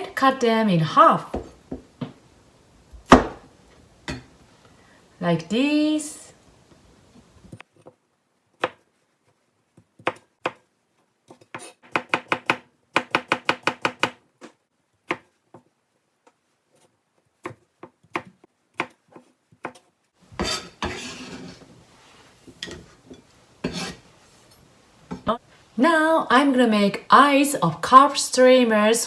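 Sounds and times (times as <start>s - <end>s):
knife scraping board: 20.3s - 24.4s
knife cutting on a cutting board: 20.4s - 21.7s, 23.6s - 24.0s.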